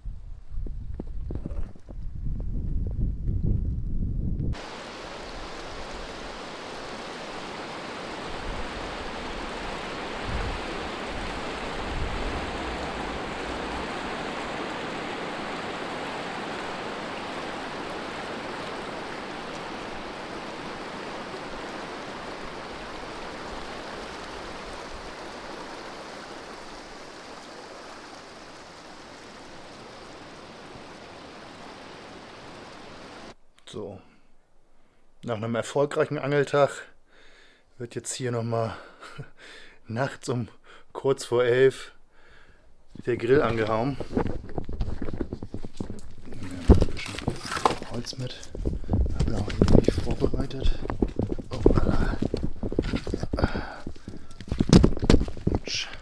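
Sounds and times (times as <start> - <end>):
rushing water roar: 4.5 - 33.4, 42.9 - 56.0.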